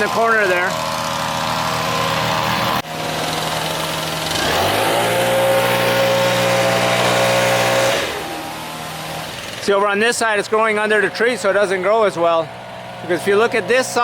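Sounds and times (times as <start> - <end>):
small engine running and revving: 0.0 - 9.8.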